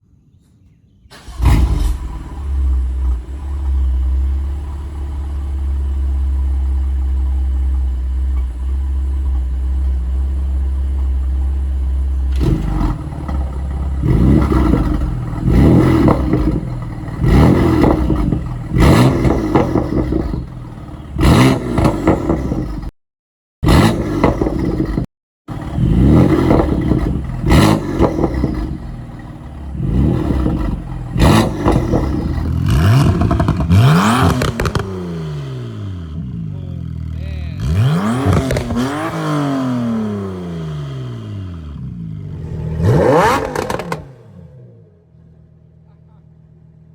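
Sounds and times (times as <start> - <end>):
car engine starting and idling: 1.1 - 22.9, 23.7 - 46.9
engine revving blips: 12.0 - 22.9, 23.6 - 45.3.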